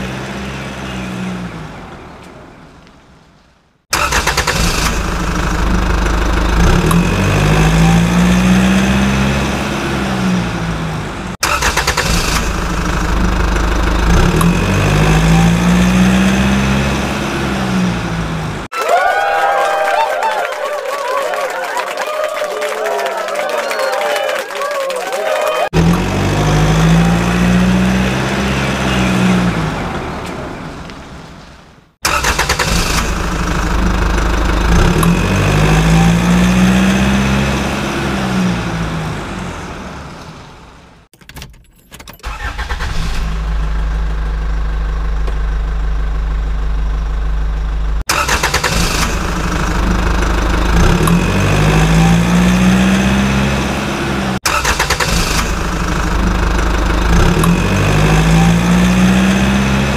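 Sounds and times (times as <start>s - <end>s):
vehicle engine starting and revving: 0.0s - 2.6s, 3.9s - 18.7s, 25.7s - 31.3s, 32.0s - 41.1s, 42.2s - 59.9s
engine idling: 3.9s - 7.8s, 10.6s - 15.7s, 32.0s - 36.0s, 42.3s - 52.0s, 54.4s - 59.0s.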